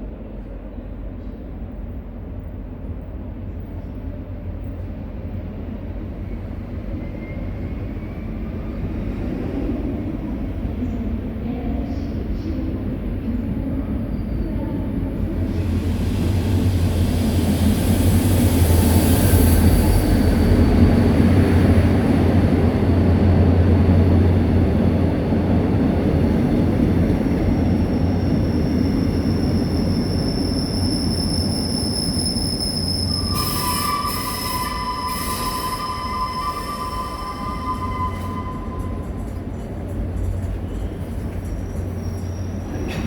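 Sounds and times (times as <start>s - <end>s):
diesel train rumble: 9.4s - 43.0s
brake and wheel squeals: 28.2s - 39.4s, 40.4s - 43.0s.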